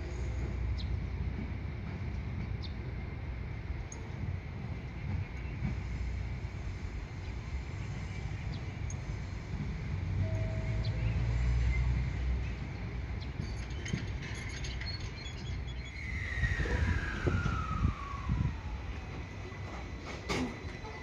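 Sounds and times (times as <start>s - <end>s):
train low rumble: 0.0s - 21.0s
train whine falling in pitch: 15.9s - 21.0s.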